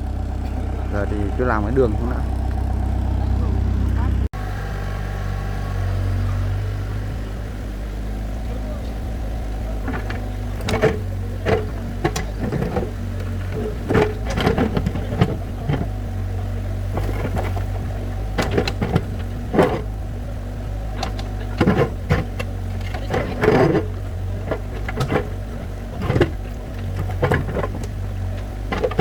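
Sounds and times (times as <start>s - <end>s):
excavator diesel engine running: 0.0s - 29.0s
bucket clanking and scraping: 8.4s - 29.0s.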